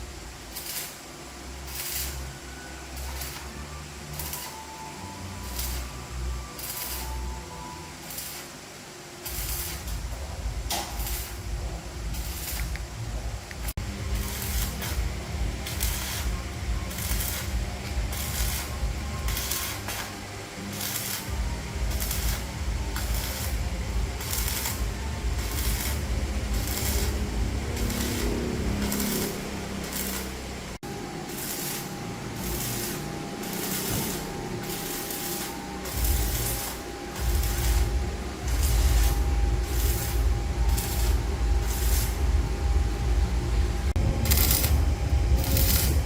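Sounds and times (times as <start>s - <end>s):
steady tone: 0.0s - 46.0s
hand tool scraping metal: 14.2s - 21.3s, 24.2s - 30.4s
uneven low rumble: 20.8s - 46.0s.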